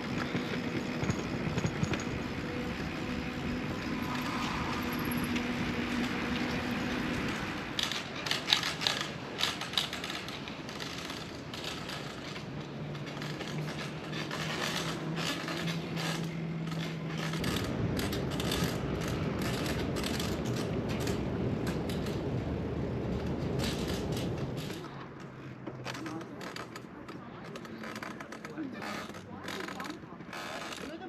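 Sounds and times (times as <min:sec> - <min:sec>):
bicycle parts clicking and rattling: 0:07.1 - 0:22.3, 0:23.5 - 0:31.0.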